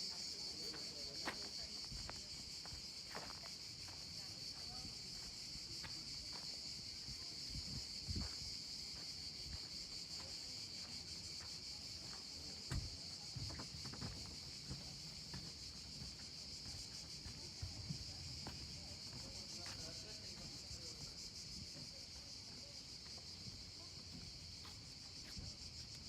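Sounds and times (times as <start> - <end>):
insects chirping: 0.0 - 26.0
footsteps thudding and scuffing: 7.6 - 9.8, 12.0 - 19.2.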